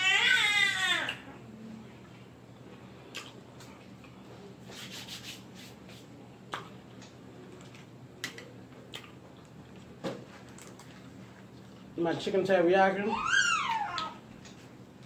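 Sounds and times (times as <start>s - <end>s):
person chewing crunchy food: 8.8s - 11.9s.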